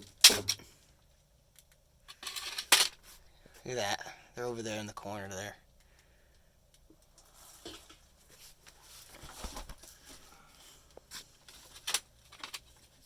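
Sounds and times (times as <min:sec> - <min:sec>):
rustling and scuffing: 0:07.3 - 0:11.8.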